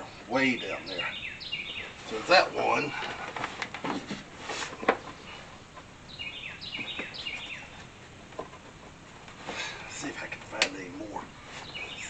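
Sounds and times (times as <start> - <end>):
bird chirping: 0.1 - 3.2, 5.0 - 8.9, 9.8 - 12.0.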